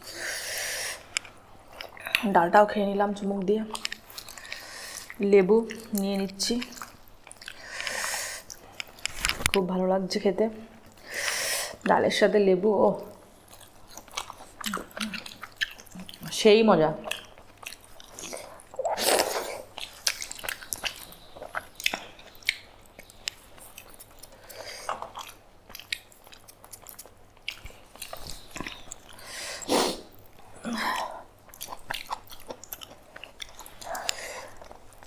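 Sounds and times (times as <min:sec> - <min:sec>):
wet eating sounds: 0:00.0 - 0:02.6, 0:03.2 - 0:09.6, 0:13.0 - 0:35.0
chewing and mouth smacks: 0:01.0 - 0:02.3, 0:03.7 - 0:09.6, 0:13.1 - 0:16.4, 0:17.0 - 0:29.3, 0:30.2 - 0:35.0.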